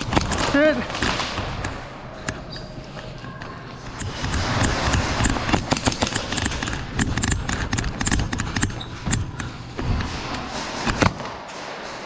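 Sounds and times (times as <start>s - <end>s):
sharp clicks and knocks: 3.4s - 12.0s.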